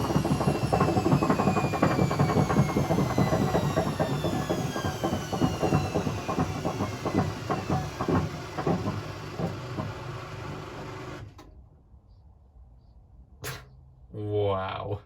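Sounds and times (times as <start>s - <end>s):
drum banging and rattling: 0.0s - 10.4s
washing machine motor whine: 0.0s - 11.5s.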